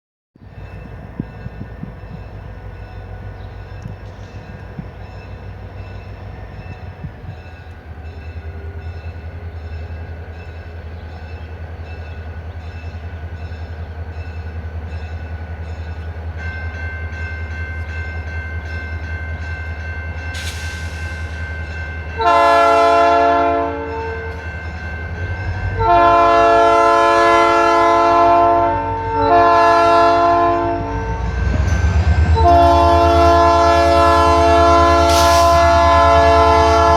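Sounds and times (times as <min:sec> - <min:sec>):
locomotive engine rumble: 0:00.4 - 0:36.9
train air horn blasts: 0:20.4 - 0:24.5, 0:25.6 - 0:36.9.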